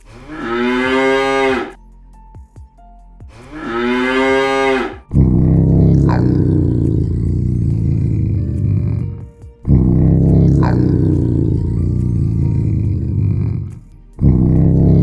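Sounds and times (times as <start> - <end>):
moo-like animal calls: 0.1 - 1.8, 3.4 - 6.3
loud low rumbling: 3.4 - 15.0.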